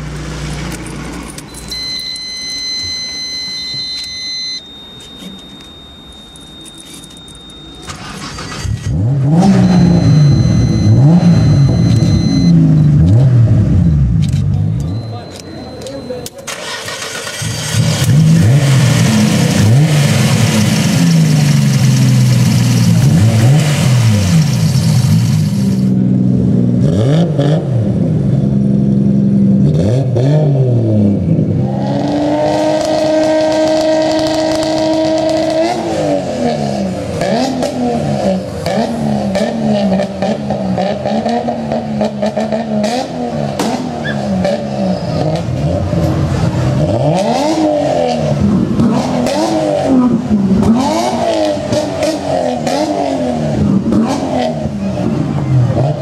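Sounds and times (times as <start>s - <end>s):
car engine revving: 7.8s - 15.2s, 16.5s - 56.0s.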